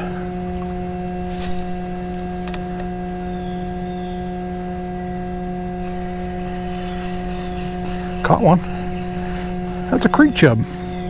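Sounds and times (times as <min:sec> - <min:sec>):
electrical hum: 0:00.0 - 0:11.0
thin high whine: 0:00.0 - 0:11.0
sharp click: 0:01.4 - 0:02.9.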